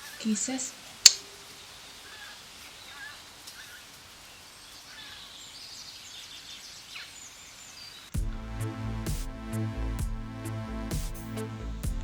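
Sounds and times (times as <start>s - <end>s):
faint background hiss: 0.0s - 8.2s
electronic music with a beat: 8.2s - 12.0s.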